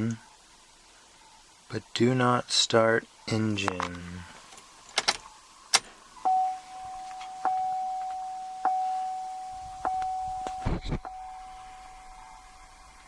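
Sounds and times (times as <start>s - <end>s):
dashboard warning chime dinging: 6.2s - 12.8s
dull thumps: 9.7s - 11.3s.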